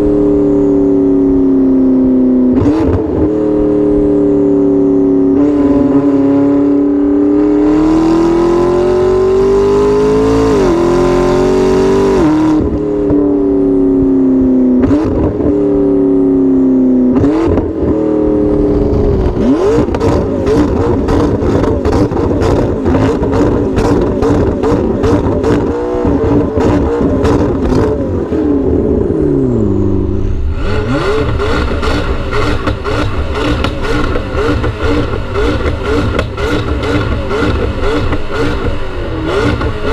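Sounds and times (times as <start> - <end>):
car engine revving: 0.0 - 39.9
exhaust pops and crackles: 18.5 - 28.0, 31.2 - 38.8.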